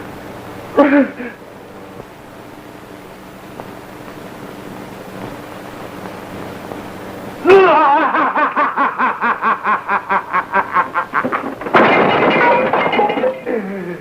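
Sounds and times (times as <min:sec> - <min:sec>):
old film soundtrack hiss: 0:00.0 - 0:11.6
burst of laughter: 0:07.5 - 0:11.6.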